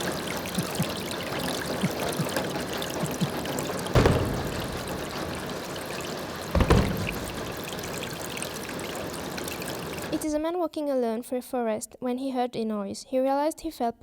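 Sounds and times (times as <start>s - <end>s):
rushing water: 0.0s - 10.3s
heavy low thumps: 4.0s - 5.6s, 6.6s - 7.9s.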